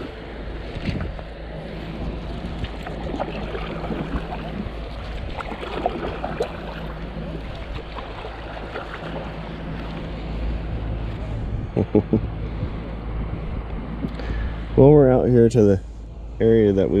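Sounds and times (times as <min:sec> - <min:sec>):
water splashing around kayak hull: 0:00.0 - 0:11.5
wind rumble on microphone: 0:00.0 - 0:17.0.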